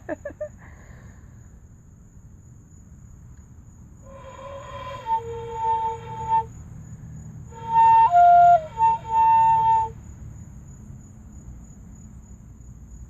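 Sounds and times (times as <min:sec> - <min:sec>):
fife notes: 0:04.1 - 0:06.4, 0:07.6 - 0:09.9.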